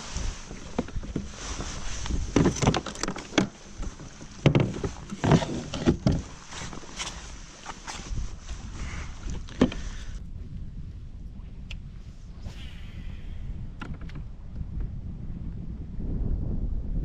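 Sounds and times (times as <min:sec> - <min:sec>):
water splashing around kayak: 0:00.0 - 0:10.4
wind rumble on microphone: 0:00.0 - 0:17.0.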